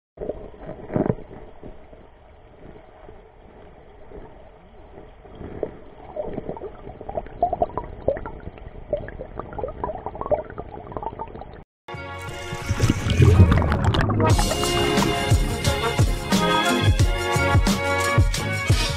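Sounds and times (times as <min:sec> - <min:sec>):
stream water splashing and gurgling: 0:12.3 - 0:15.6.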